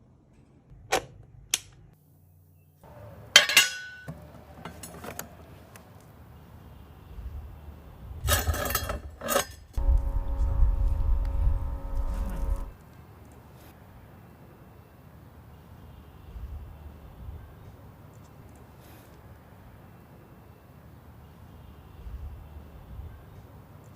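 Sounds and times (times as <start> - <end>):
sharp ringing clank: 3.4 - 4.1
low rumble: 9.8 - 12.8
steady pitched tone: 9.8 - 12.8.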